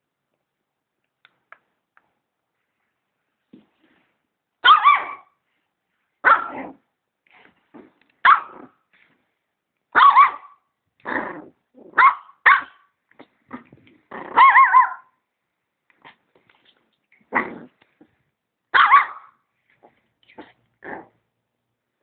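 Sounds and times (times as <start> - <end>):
dog barking: 4.6 - 5.3, 6.2 - 6.8, 8.2 - 8.7, 9.9 - 10.6, 11.9 - 12.9, 14.3 - 15.1, 18.7 - 19.4.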